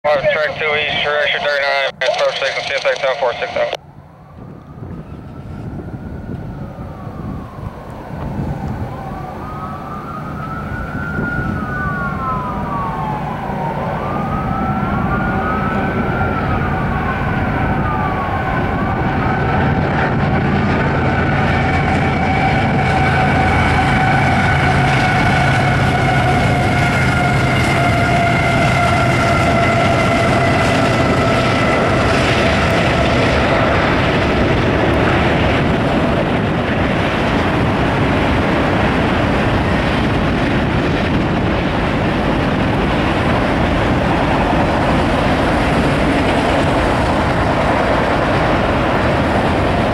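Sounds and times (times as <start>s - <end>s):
steady high-pitched whine: 0.2s - 3.8s
freight train rumble: 10.9s - 49.9s.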